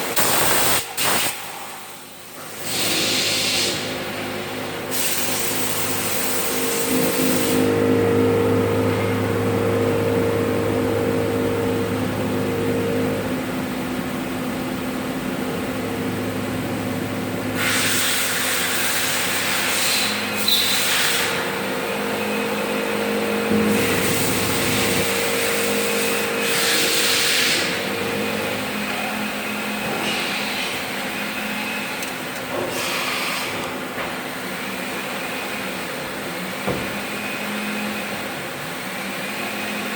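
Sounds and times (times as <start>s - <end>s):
cnc machine humming: 4.4s - 32.6s.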